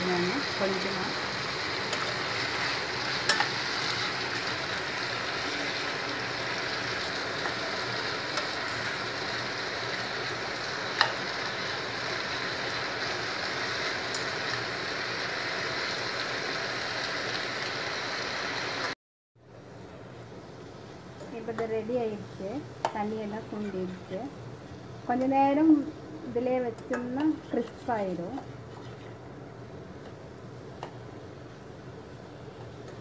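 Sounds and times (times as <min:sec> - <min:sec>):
food sizzling in a pan: 0:00.0 - 0:19.0, 0:20.7 - 0:33.0
metal spoon clicking on pan: 0:26.8 - 0:27.3.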